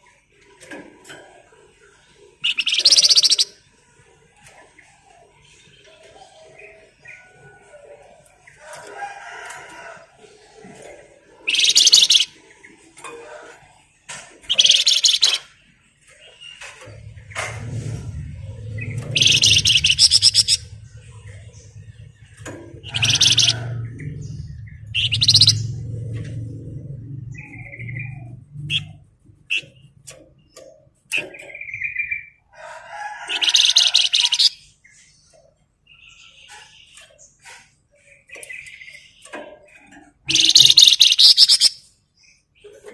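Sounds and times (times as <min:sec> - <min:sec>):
songbird singing: 0:02.0 - 0:03.8, 0:04.4 - 0:42.9
soft bird chirps: 0:02.4 - 0:03.6, 0:11.5 - 0:12.4, 0:14.5 - 0:15.6, 0:18.6 - 0:22.0, 0:22.8 - 0:32.3, 0:33.4 - 0:42.8.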